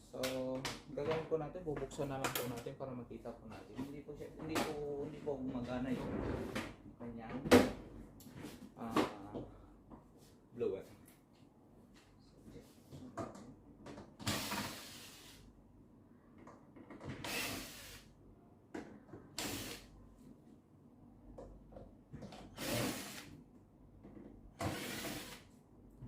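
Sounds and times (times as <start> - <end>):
cordless screwdriver running: 17.2 - 18.0, 19.4 - 19.9, 22.6 - 23.3, 24.6 - 25.4.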